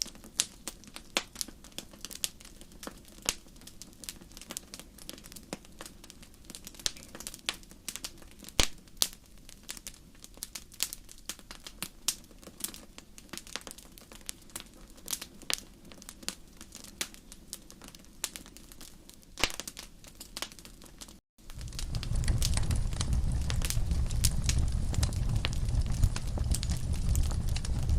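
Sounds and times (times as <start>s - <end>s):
wood fire crackling: 0.0s - 27.9s
low rumble: 21.5s - 27.9s.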